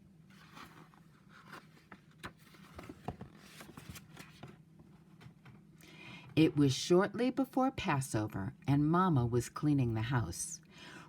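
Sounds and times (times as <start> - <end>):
book pages turning with clicks: 0.3 - 4.6
paper rustling: 0.3 - 5.5.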